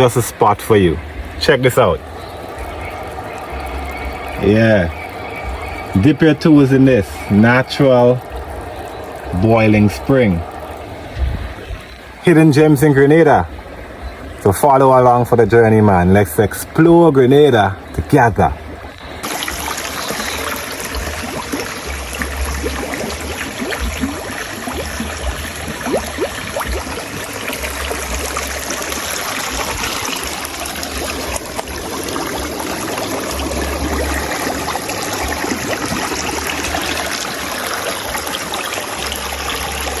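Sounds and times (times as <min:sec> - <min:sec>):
spring water trickling and splashing: 0:00.0 - 0:40.0
low microphone rumble: 0:00.9 - 0:14.5.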